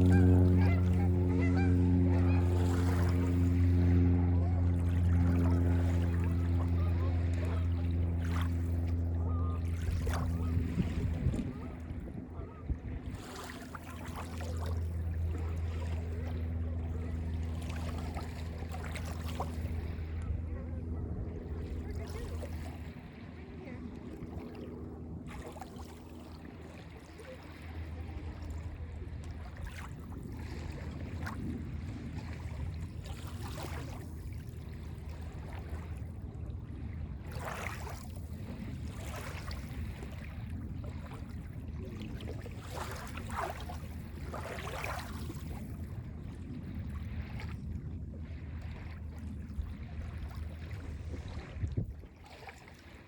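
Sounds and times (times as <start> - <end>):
low rumble: 0.0 - 52.1
small waves lapping on beach: 0.0 - 53.0.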